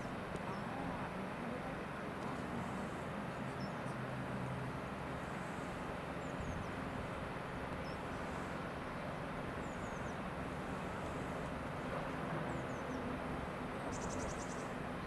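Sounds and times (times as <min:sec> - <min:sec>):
bird chirps: 0:13.9 - 0:14.6.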